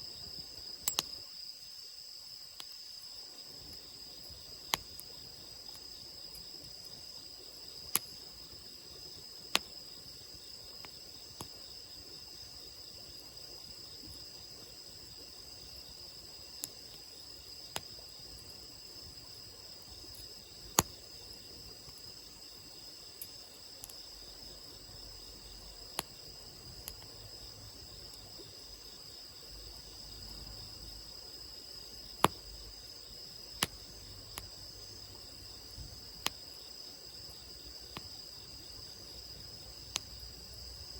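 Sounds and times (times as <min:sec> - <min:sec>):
insects chirping: 0:00.0 - 0:40.9
campfire crackling and popping: 0:00.8 - 0:01.3, 0:03.5 - 0:07.0, 0:07.6 - 0:11.7, 0:15.8 - 0:18.1, 0:20.1 - 0:22.0, 0:22.6 - 0:24.5, 0:25.3 - 0:27.2, 0:33.5 - 0:34.6, 0:36.1 - 0:36.6.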